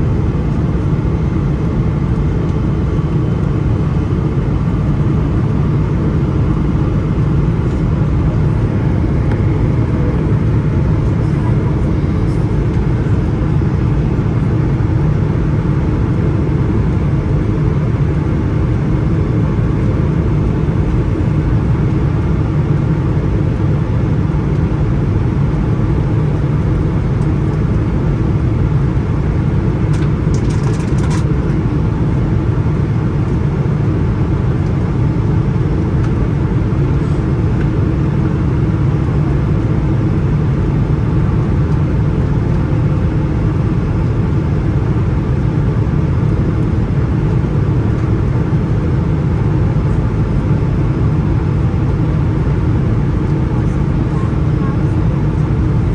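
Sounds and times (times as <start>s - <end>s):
jet engines droning: 0.0s - 55.9s.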